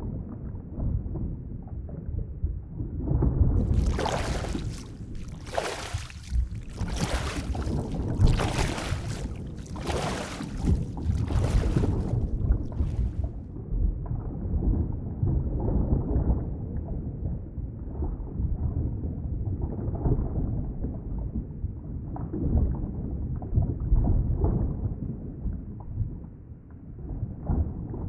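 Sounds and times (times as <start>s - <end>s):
underwater wash of moving water: 3.6s - 13.4s.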